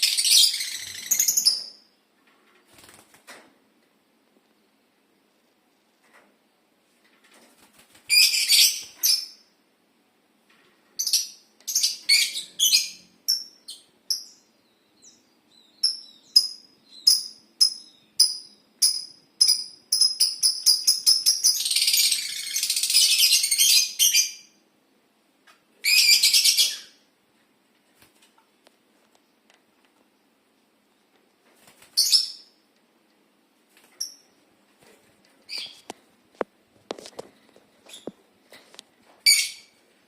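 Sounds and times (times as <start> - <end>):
lovebirds chirping and squawking: 0.0 - 1.9, 8.1 - 9.5, 11.0 - 24.6, 25.8 - 27.0, 31.8 - 32.6, 35.5 - 36.0, 37.8 - 38.2, 39.2 - 39.8.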